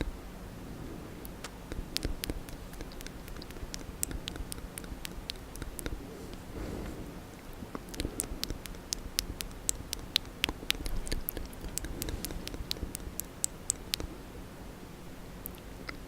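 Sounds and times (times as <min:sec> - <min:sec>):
wet mouth clicks and smacks: 0:01.3 - 0:06.4, 0:07.7 - 0:14.1.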